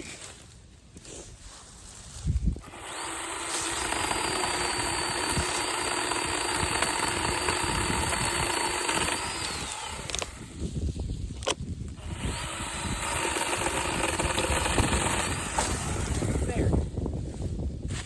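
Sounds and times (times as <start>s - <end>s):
chainsaw running: 2.6s - 10.6s, 11.9s - 16.9s.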